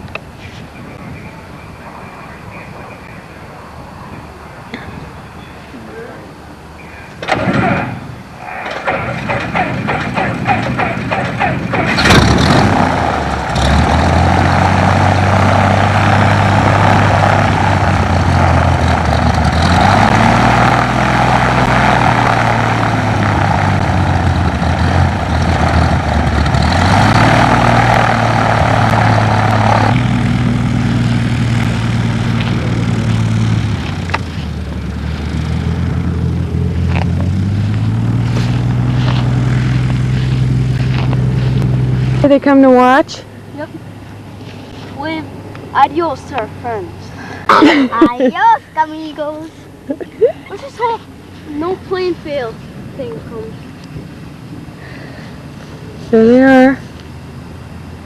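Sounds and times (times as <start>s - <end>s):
loud engine burst: 7.2s - 43.0s
propeller airplane engine running: 7.2s - 47.7s.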